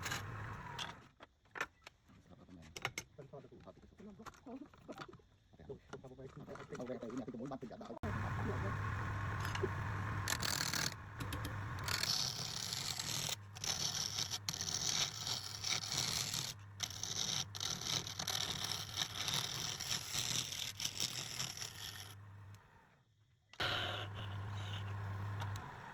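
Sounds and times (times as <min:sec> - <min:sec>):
lathe motor hum: 0:00.0 - 0:01.0, 0:08.0 - 0:18.4, 0:21.6 - 0:22.9, 0:23.6 - 0:25.9
turning tool scraping wood: 0:00.0 - 0:01.0, 0:08.5 - 0:22.8, 0:23.6 - 0:25.9.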